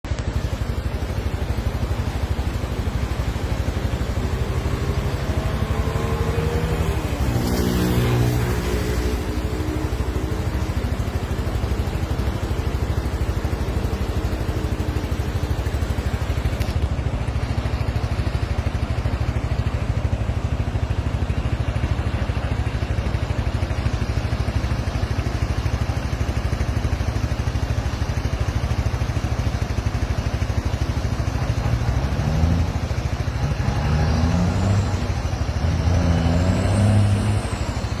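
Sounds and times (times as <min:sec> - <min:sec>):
flooded river rushing: 0:00.2 - 0:38.0
low pitched rising tone: 0:03.6 - 0:10.8, 0:33.4 - 0:38.0.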